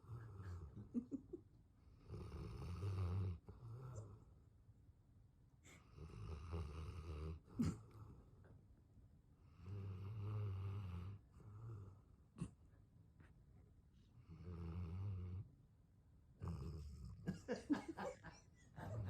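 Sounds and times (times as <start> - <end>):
dog snoring loudly: 2.0 - 4.1, 5.9 - 7.4, 14.3 - 15.4, 16.4 - 17.2.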